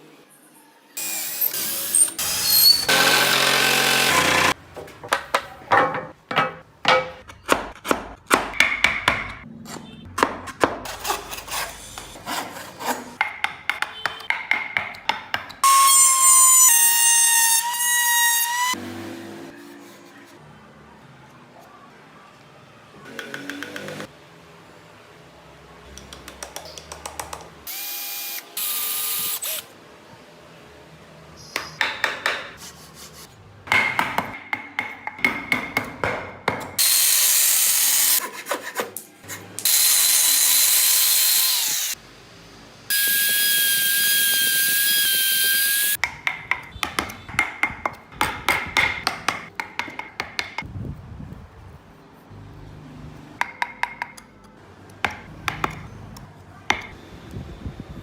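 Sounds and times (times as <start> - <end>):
power tool whining through wood: 1.0 - 4.6, 39.6 - 42.0.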